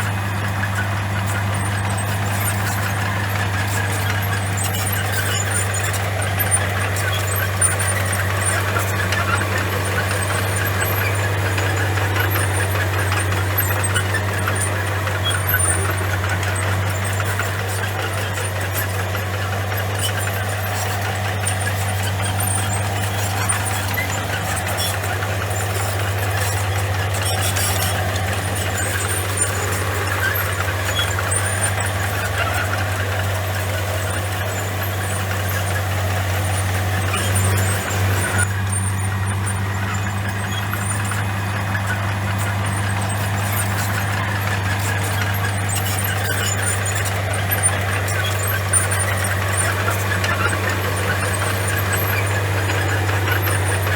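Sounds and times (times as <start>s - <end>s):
bulldozer diesel engine running: 0.0s - 53.9s
small clicks and rattles: 0.0s - 53.9s.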